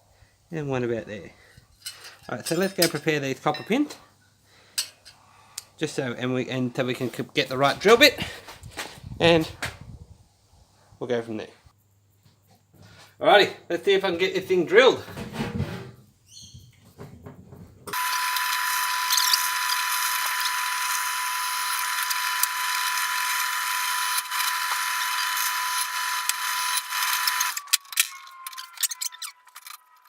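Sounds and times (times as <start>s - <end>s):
electric drill boring into steel: 17.9s - 30.0s.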